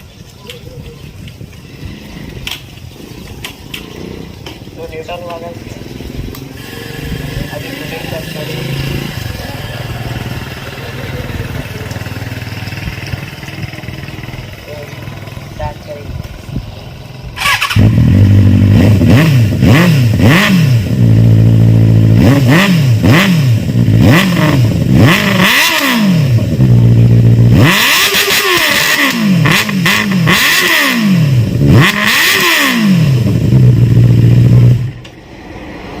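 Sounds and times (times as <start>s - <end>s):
motorcycle engine revving: 1.6s - 36.0s.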